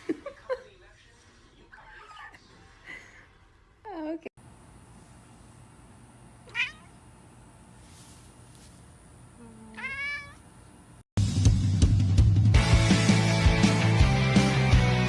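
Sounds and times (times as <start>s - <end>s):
kitten meowing: 6.5s - 6.9s, 9.8s - 10.4s
music: 11.2s - 15.0s.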